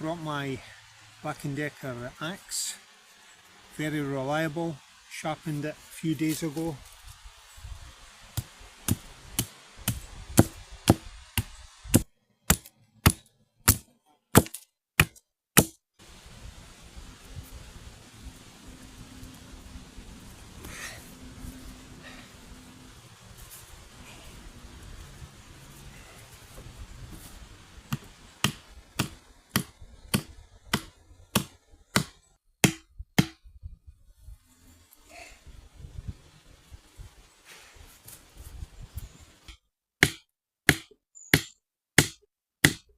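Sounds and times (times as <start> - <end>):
axe chopping wood: 8.4 - 15.8, 27.9 - 33.4, 40.0 - 42.9.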